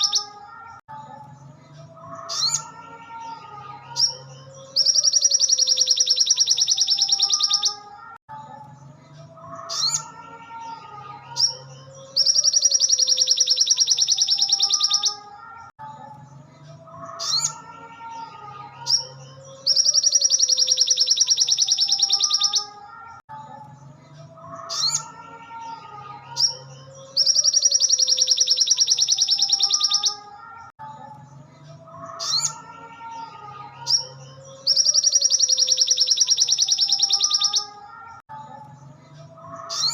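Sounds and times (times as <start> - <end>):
bird rising chirps: 4.0 - 7.9, 11.4 - 15.3, 18.9 - 22.8, 26.4 - 30.4, 33.9 - 37.8.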